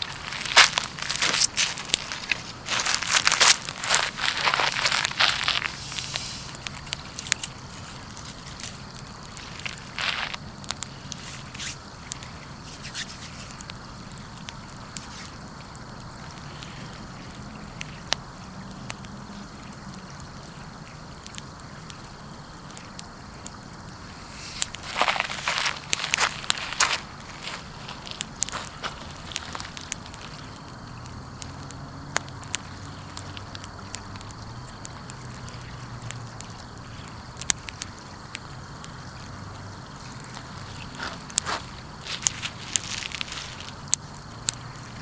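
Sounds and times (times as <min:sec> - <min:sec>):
fire popping: 0:00.0 - 0:45.0
wood fire hissing: 0:00.0 - 0:45.0.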